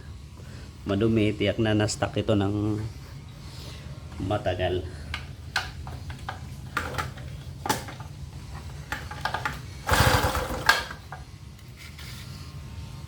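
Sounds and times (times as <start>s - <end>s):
handling clicks and rattles: 5.1s - 11.3s
generator recoil starter pulled: 5.6s - 11.2s
engine cranking: 6.1s - 11.2s.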